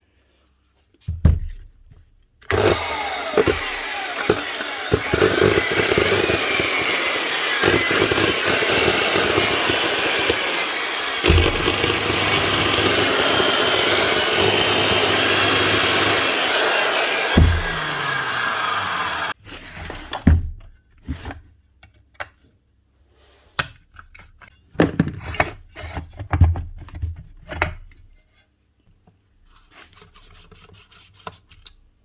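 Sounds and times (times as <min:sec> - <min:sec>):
angle grinder spluttering whine: 0:02.5 - 0:19.4
thump: 0:17.4 - 0:17.8.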